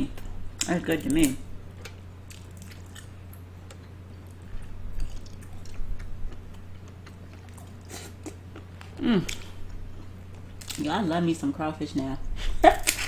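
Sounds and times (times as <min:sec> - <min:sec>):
low electrical hum: 0:00.0 - 0:13.0
wet chewing sounds: 0:01.8 - 0:10.8
person humming: 0:09.0 - 0:09.4.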